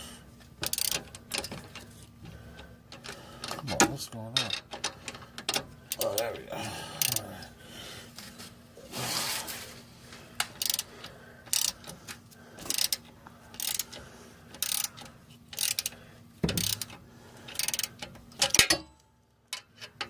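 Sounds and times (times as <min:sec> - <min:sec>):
ratchet wrench clicking: 0:00.6 - 0:01.8, 0:07.0 - 0:07.2, 0:10.5 - 0:10.9, 0:11.5 - 0:12.0, 0:12.6 - 0:18.8.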